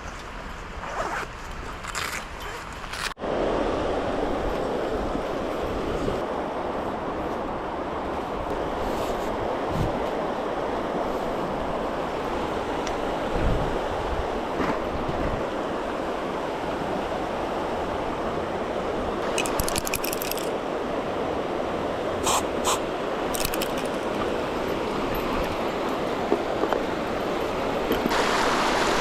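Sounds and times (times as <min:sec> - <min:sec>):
river water rushing: 0:15.4 - 0:29.0.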